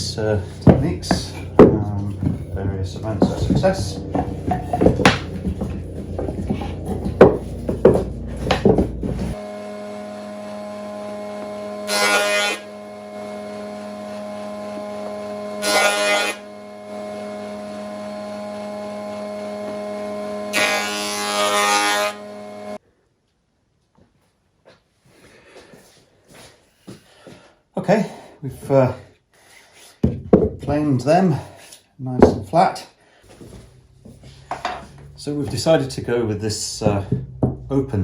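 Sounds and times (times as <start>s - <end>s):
power planer cutting wood: 0.0s - 22.8s, 33.3s - 38.0s
wooden blocks knocking and clattering: 0.3s - 9.4s, 30.0s - 30.8s, 32.2s - 32.5s, 33.3s - 35.7s, 36.7s - 37.8s.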